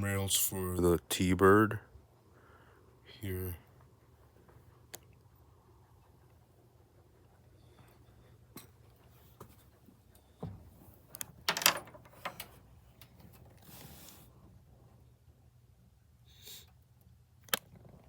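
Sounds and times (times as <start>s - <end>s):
light clicks and knocks: 10.4s - 13.6s.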